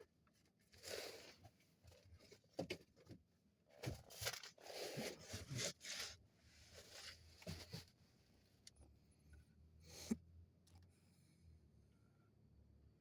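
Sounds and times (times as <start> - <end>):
rustling and scraping: 0.7 - 8.0.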